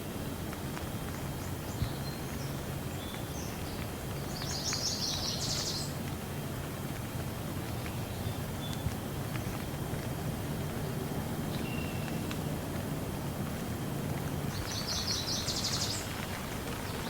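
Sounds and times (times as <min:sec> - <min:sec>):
steady rain: 0:00.0 - 0:17.0
raindrops ticking: 0:00.1 - 0:17.0
bird chirping: 0:14.5 - 0:17.0.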